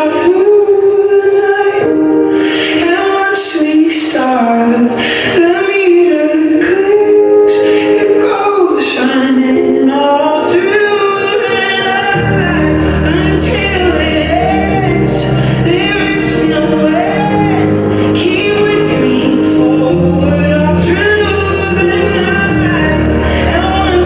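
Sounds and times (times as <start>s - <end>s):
backing music: 0.0s - 24.0s
low bass accompaniment: 11.9s - 24.0s.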